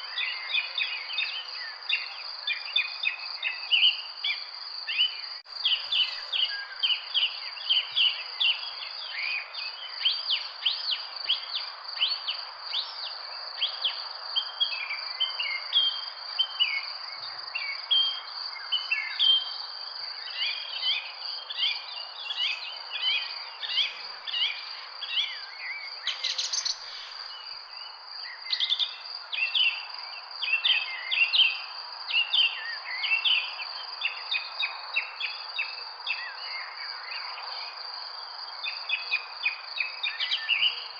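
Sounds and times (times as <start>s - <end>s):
birds chirping: 20.3s - 29.8s.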